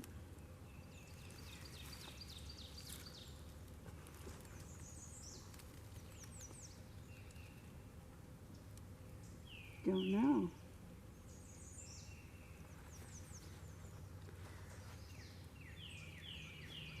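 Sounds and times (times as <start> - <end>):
low background hiss: 0.0 - 17.0
small bird chirps: 0.7 - 3.5, 4.3 - 7.8, 11.2 - 17.0.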